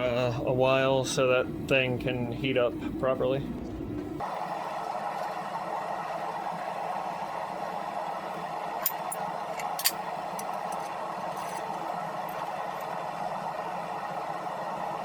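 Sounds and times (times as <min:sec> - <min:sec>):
forge hissing: 0:04.2 - 0:15.0.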